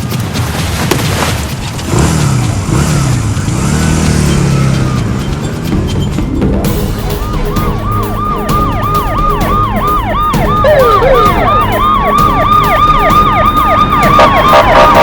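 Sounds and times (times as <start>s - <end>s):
low vehicle rumble: 0.0s - 15.0s
police siren slow wail: 7.1s - 15.0s
police siren fast yelp: 7.2s - 15.0s.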